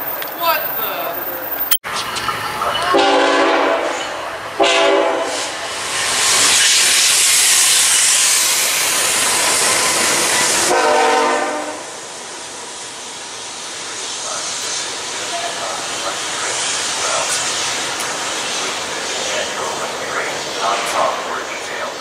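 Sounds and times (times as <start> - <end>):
train passing with rushing noise: 0.0 - 22.0
train horn blasts: 2.9 - 5.6, 10.7 - 12.1.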